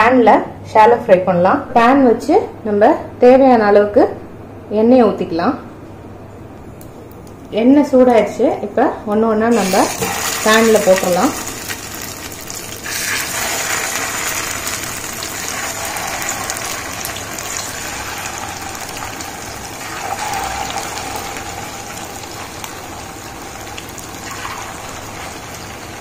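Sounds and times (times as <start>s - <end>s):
patties sizzling in hot oil: 9.5s - 26.0s.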